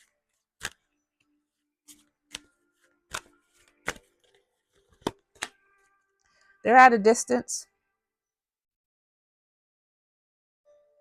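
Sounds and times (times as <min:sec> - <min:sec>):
cards tapping on a table: 0:03.1 - 0:04.0.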